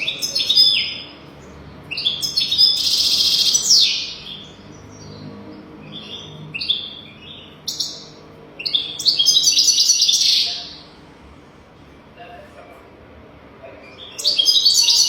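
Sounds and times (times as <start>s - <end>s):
finch twittering song: 0.0s - 10.9s, 13.8s - 15.0s.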